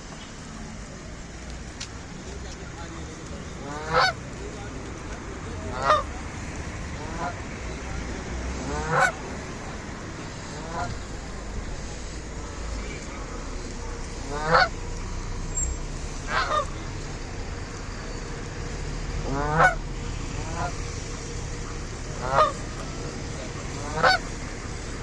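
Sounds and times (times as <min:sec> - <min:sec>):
goose honking: 0:03.6 - 0:04.2, 0:05.6 - 0:06.2, 0:06.9 - 0:07.8, 0:08.5 - 0:09.3, 0:10.3 - 0:11.2, 0:14.2 - 0:14.8, 0:16.2 - 0:17.0, 0:19.2 - 0:25.0.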